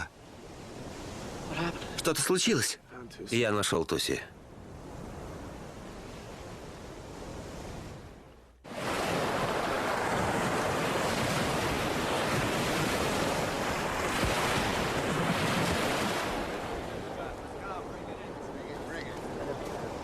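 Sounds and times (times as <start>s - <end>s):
ocean waves washing: 0.0s - 20.0s
wind: 0.0s - 20.0s.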